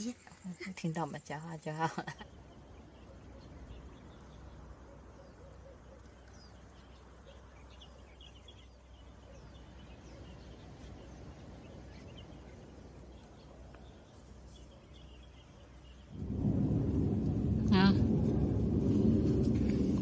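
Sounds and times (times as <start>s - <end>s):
low steady rumble: 8.9s - 20.0s.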